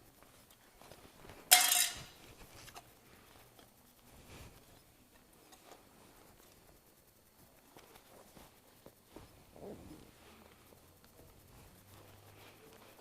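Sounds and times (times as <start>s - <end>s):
metallic clink: 1.5s - 2.9s.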